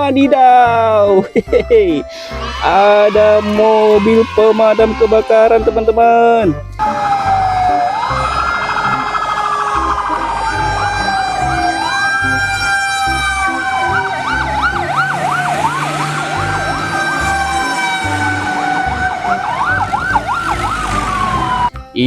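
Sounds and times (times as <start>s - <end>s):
siren wail: 2.4s - 6.2s, 6.8s - 21.8s
siren fast warbling yelp: 6.8s - 21.7s
steady high siren tone: 6.8s - 21.7s.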